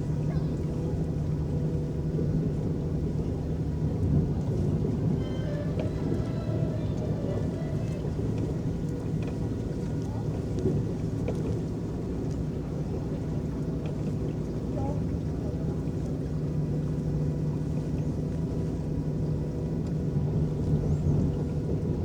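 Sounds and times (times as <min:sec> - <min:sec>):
boat motor rumble: 0:00.0 - 0:22.0
water churning: 0:00.0 - 0:22.0
faint distant voices or music: 0:03.3 - 0:11.0.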